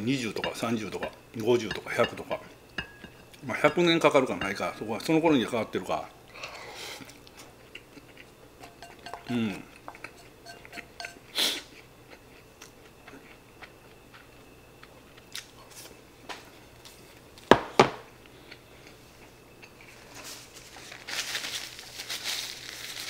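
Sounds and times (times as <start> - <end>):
ceramic bowl knocking on counter: 0.4 - 4.6, 8.6 - 11.2
chopsticks clicking on bowl: 0.4 - 4.8, 8.6 - 11.2
chewing food: 7.0 - 16.0.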